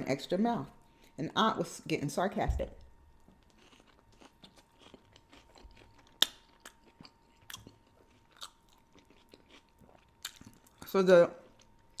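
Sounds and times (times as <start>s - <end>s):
close chewing with mouth clicks: 3.2s - 10.8s.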